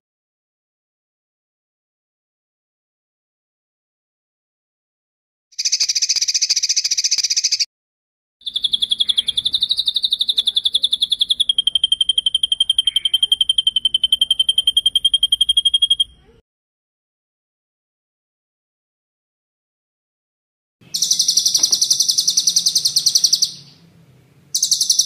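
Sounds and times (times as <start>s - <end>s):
songbird rolling trill: 5.6s - 7.6s, 8.4s - 16.2s, 20.8s - 23.8s, 24.5s - 25.0s.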